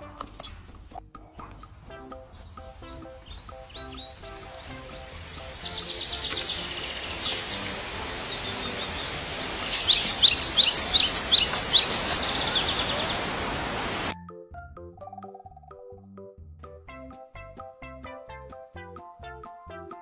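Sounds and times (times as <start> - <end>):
soft musical notes: 1.0 - 20.0
outdoor background hiss: 1.7 - 14.2
small bird chirping: 2.2 - 14.2.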